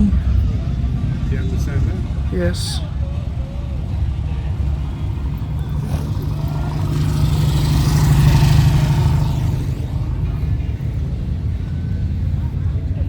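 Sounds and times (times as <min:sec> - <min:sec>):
steady low rumble: 0:00.0 - 0:13.0
vehicle passing by: 0:04.1 - 0:13.0.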